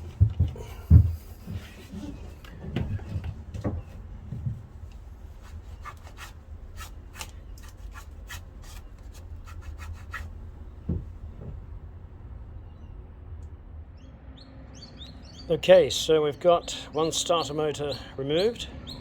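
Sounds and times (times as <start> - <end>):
dull thumps: 0.0 - 4.8, 10.8 - 11.7.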